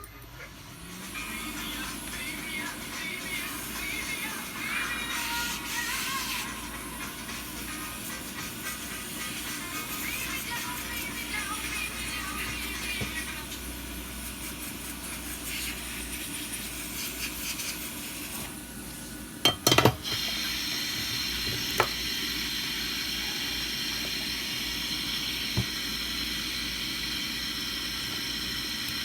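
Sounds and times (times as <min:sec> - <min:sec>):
steady hiss: 0:00.6 - 0:19.4.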